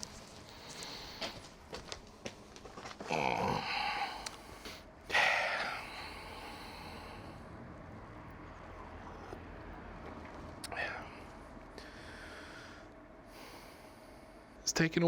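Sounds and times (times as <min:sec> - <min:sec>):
man grunting: 0:03.0 - 0:04.0.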